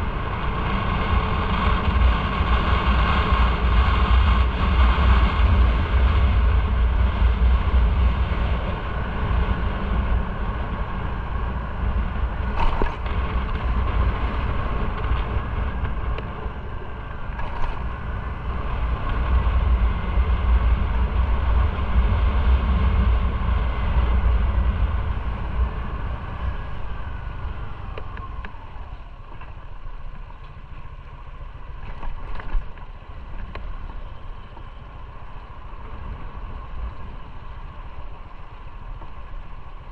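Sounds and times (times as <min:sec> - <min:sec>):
wind rush: 0:00.0 - 0:30.7
motorcycle engine running: 0:00.0 - 0:39.9
road noise: 0:00.0 - 0:39.9.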